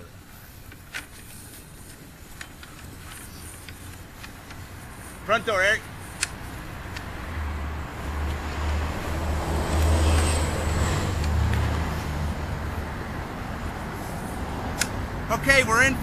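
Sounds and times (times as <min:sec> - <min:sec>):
vehicle passing by: 0:04.6 - 0:15.8.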